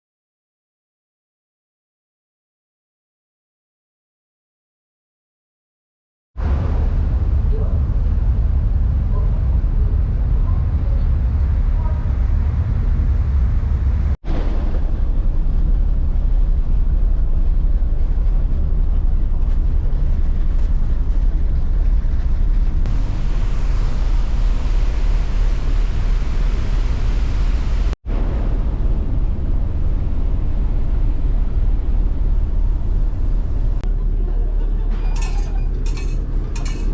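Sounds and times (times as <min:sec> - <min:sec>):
vehicle rumble: 0:14.8 - 0:24.6.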